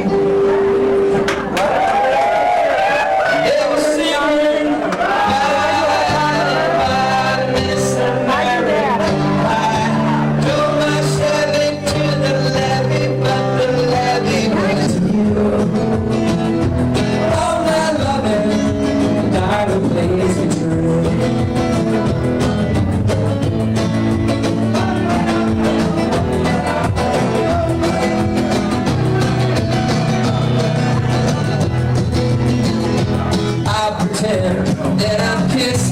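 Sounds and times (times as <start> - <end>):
music with singing voice: 3.2 - 35.9.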